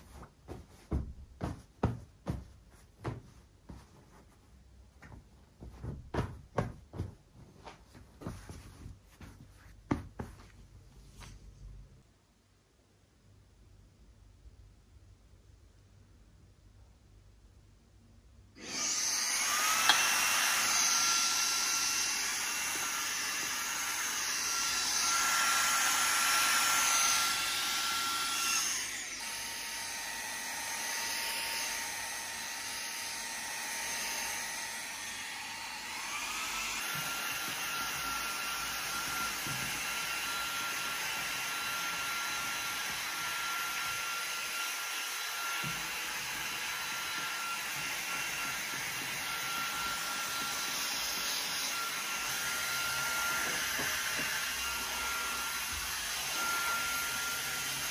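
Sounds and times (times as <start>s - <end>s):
vacuum cleaner whine: 18.6s - 57.9s.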